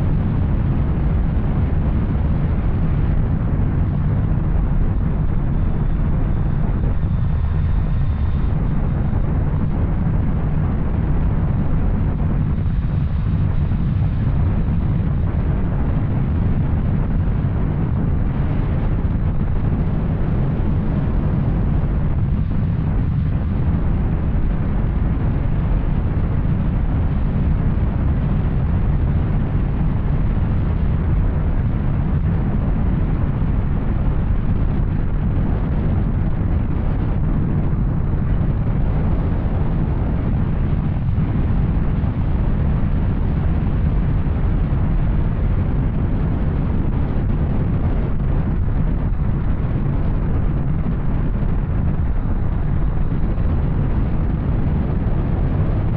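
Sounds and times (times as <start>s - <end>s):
wind rush: 0.0s - 55.9s.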